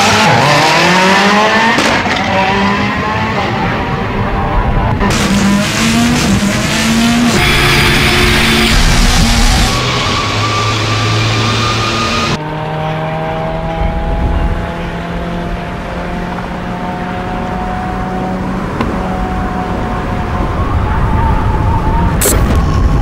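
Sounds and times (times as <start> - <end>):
rally car engine cruising: 0.0 - 22.2.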